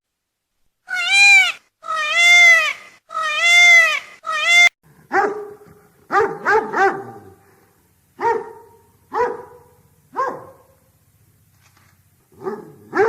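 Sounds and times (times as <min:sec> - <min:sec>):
drawn-out animal calls: 0:00.9 - 0:04.7
dog barking: 0:05.1 - 0:07.4, 0:08.2 - 0:10.9, 0:12.3 - 0:13.0.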